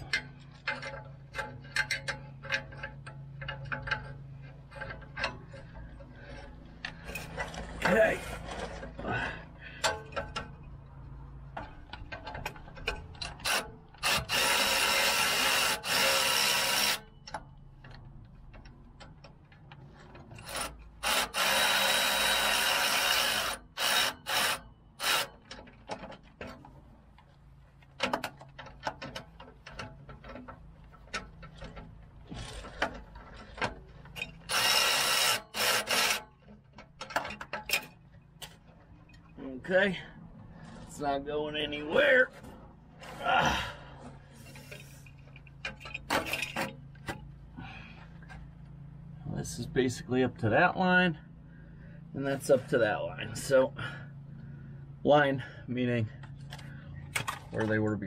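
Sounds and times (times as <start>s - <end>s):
ratchet wrench ratcheting: 0.0s - 7.5s, 11.7s - 17.1s, 20.3s - 26.1s, 28.0s - 38.0s.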